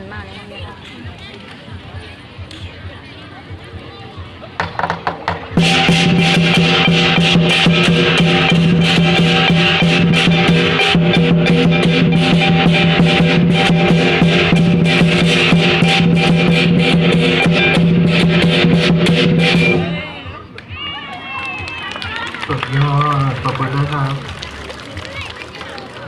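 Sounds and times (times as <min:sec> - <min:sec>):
rapid drumbeats: 0:00.0 - 0:26.0.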